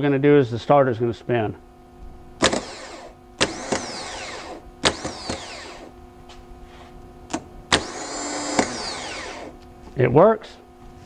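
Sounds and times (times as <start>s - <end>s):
starter motor spinning whine: 2.4s - 6.0s, 7.7s - 9.6s.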